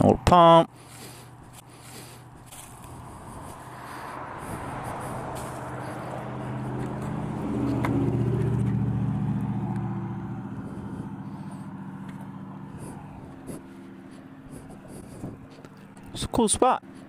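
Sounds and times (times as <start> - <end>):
car passing by: 2.8 - 16.0.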